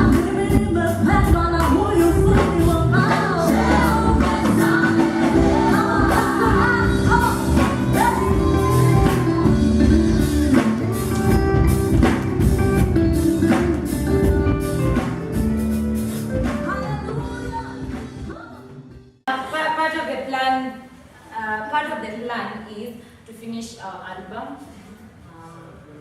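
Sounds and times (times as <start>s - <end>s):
gospel band with singing: 0.0s - 18.5s.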